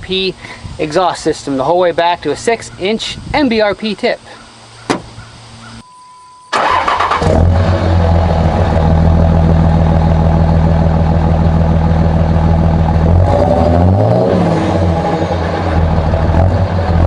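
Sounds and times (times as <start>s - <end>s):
diesel truck engine starting and idling: 6.5s - 17.0s.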